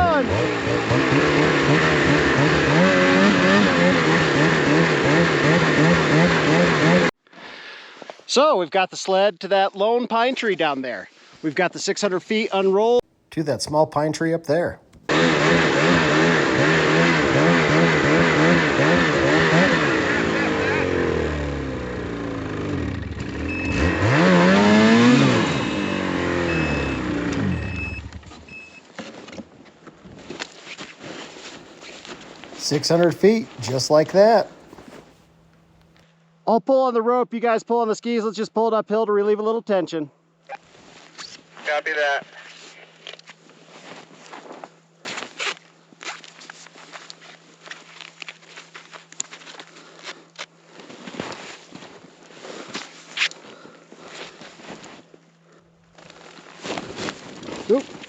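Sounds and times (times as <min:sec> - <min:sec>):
winch engine running under load: 0:00.0 - 0:07.1, 0:15.1 - 0:28.1
short high beeps: 0:23.5 - 0:24.0, 0:25.9 - 0:28.8.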